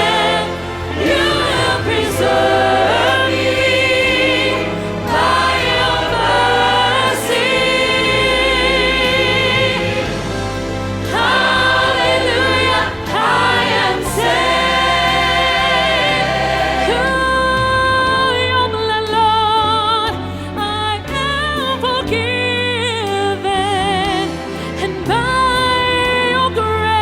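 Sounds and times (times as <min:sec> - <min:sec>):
choir singing a hymn: 0:00.0 - 0:18.8
instrumental accompaniment: 0:00.0 - 0:26.8.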